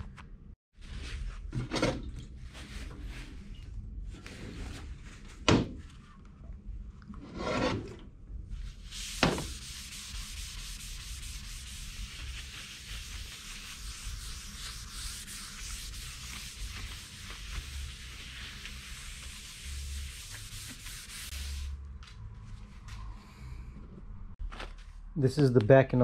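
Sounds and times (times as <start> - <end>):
rough scraping on a surface: 7.2 - 8.0.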